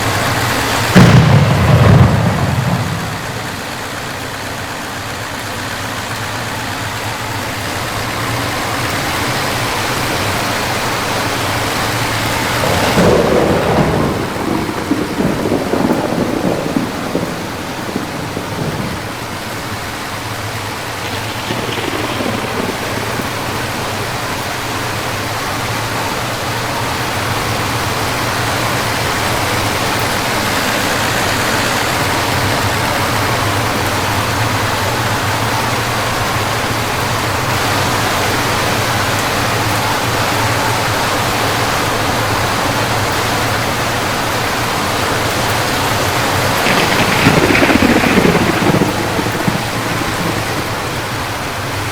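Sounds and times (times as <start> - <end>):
thunder rumbling: 0.0 - 43.2, 45.2 - 51.9
heavy rain: 0.0 - 51.9.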